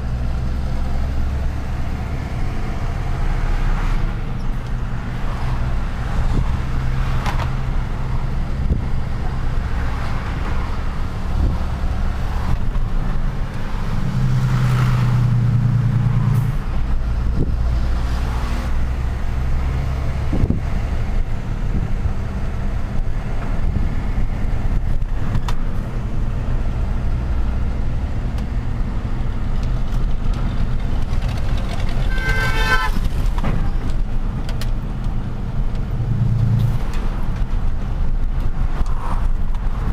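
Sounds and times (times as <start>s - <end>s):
city traffic: 0.0s - 39.9s
horn sounding: 32.0s - 33.2s.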